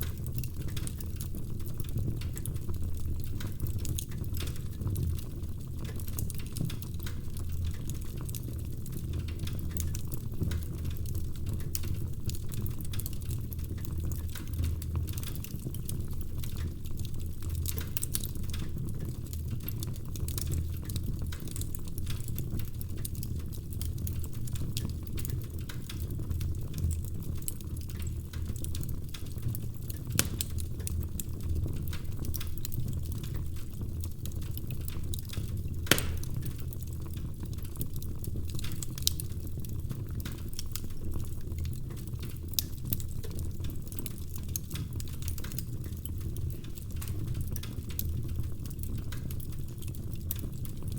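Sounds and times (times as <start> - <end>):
logs crackling in fireplace: 0.0 - 50.9
low rumble of flame: 0.0 - 50.9
sharp wood pops: 35.9 - 36.4.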